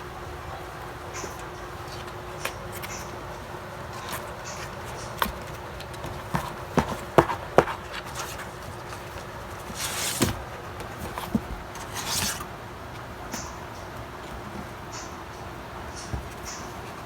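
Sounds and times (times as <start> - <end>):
scuffling rustles: 1.2 - 13.5.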